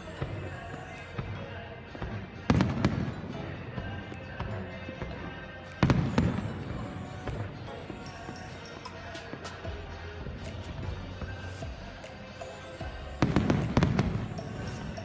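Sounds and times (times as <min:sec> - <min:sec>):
fireworks bursting with bang: 0:00.2 - 0:08.0, 0:13.2 - 0:15.0.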